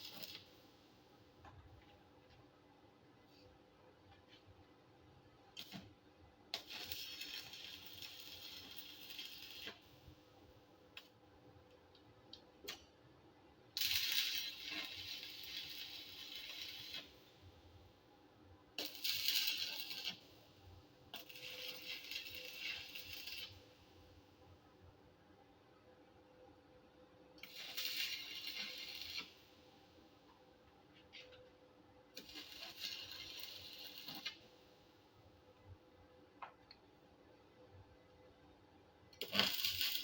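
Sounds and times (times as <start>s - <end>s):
arc welding crackling and sizzling: 0.0s - 0.7s, 5.5s - 11.2s, 13.7s - 17.9s, 18.7s - 24.2s, 27.4s - 30.0s, 32.1s - 34.7s, 39.2s - 40.0s.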